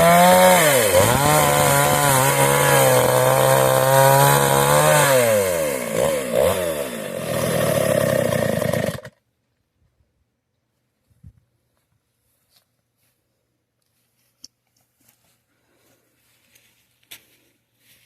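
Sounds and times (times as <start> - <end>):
chainsaw running at high revs: 0.0 - 9.2.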